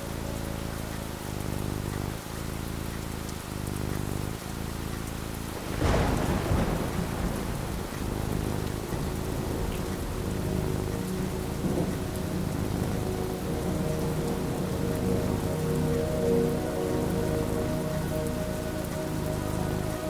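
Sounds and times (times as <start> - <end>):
steady rain: 0.0 - 20.0
thunder crack and rumble: 5.4 - 20.0.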